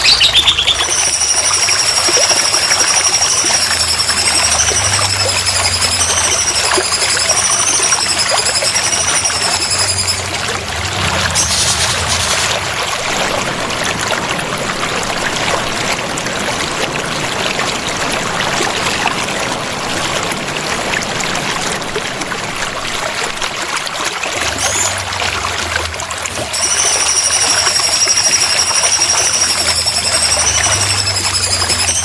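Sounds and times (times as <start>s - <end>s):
high-pitched whistle: 0.0s - 12.6s, 26.3s - 32.0s
running water trickling: 0.0s - 32.0s.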